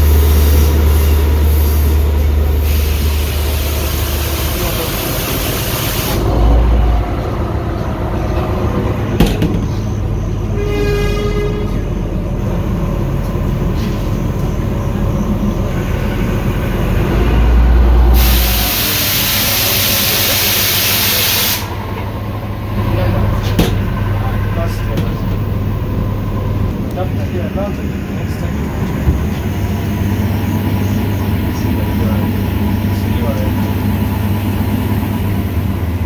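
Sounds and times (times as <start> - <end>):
loud hiss: 0.0 - 6.3, 18.1 - 21.8
train rumbling on rails: 0.0 - 36.0.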